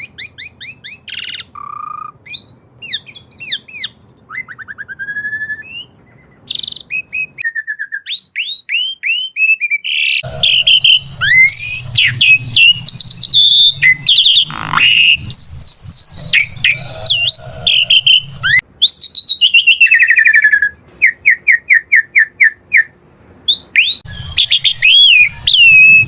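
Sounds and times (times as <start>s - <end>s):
starling singing: 9.8s - 26.0s.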